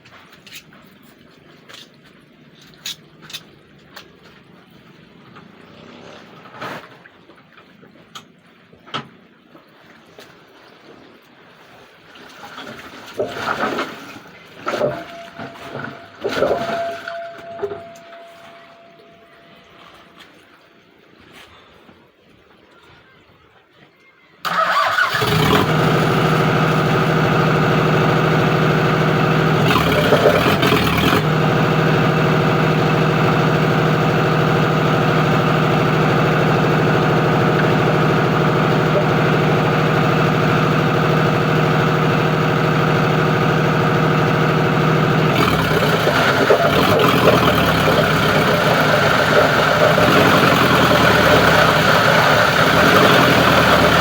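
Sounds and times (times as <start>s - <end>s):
plastic grinding machine running: 14.7s - 18.6s, 25.1s - 54.0s.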